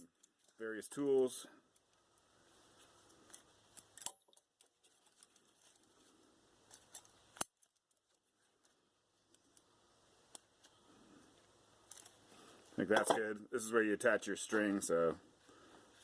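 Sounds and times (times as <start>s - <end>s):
hand tools clicking on steel wire: 2.9s - 5.9s, 6.6s - 10.8s.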